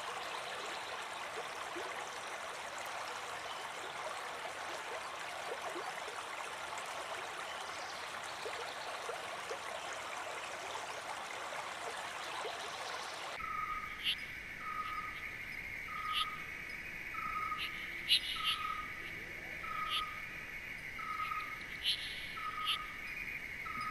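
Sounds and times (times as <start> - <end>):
rushing water stream: 0.0 - 14.0
high insect drone: 13.4 - 23.9
bird chirps: 15.9 - 16.4, 17.2 - 19.1, 21.0 - 23.9.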